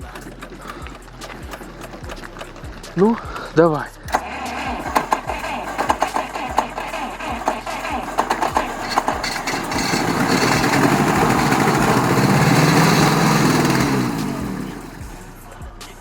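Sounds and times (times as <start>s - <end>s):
engine cranking by starter: 0.0s - 16.0s
engine running and dying: 0.0s - 16.0s.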